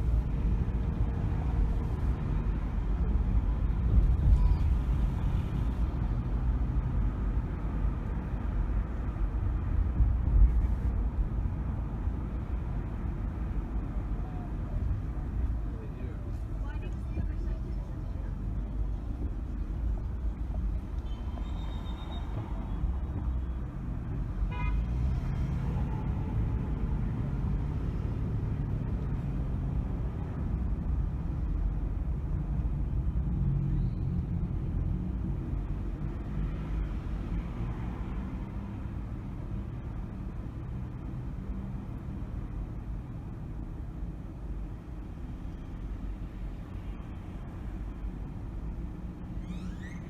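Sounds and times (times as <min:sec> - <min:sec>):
car engine and road rumble: 0:00.0 - 0:50.0
car horn toot: 0:24.5 - 0:24.9.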